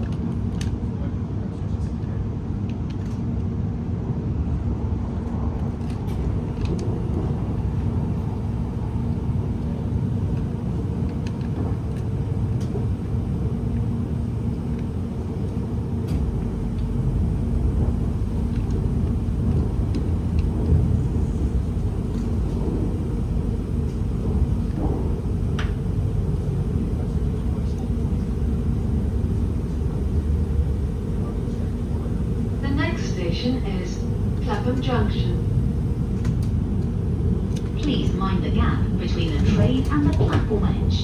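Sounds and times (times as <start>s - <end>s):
train wheels rumbling on rail: 0.0s - 41.0s
faint hum: 5.5s - 41.0s.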